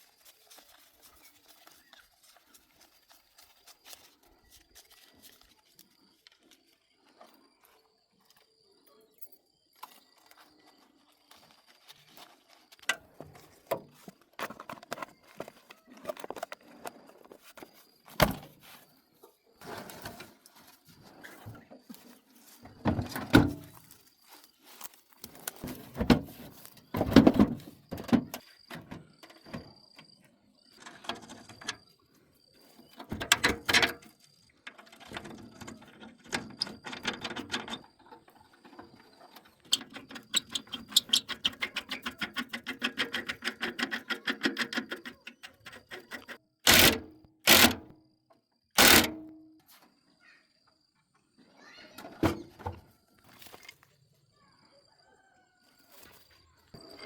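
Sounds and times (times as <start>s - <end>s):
rapid even clicking: 40.2s - 47.8s, 48.8s - 49.2s
short loud bursts: 48.8s - 49.1s.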